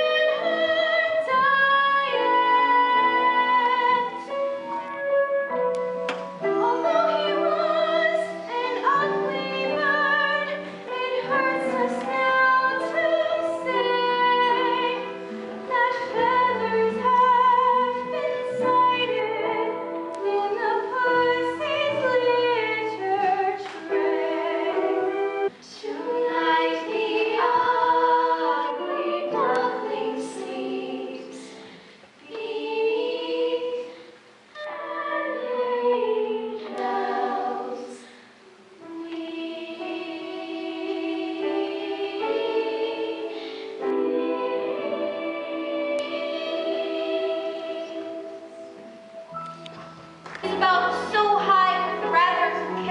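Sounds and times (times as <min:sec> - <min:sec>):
instrumental accompaniment: 0:00.0 - 0:52.9
voices singing held notes: 0:00.0 - 0:52.9.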